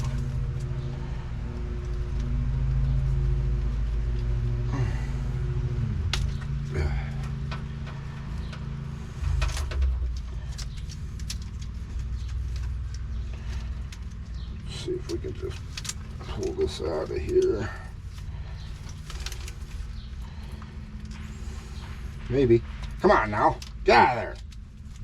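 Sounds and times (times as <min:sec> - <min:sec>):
low mechanical hum: 0:00.0 - 0:25.0
wiring connectors clicking and rattling: 0:00.0 - 0:25.0.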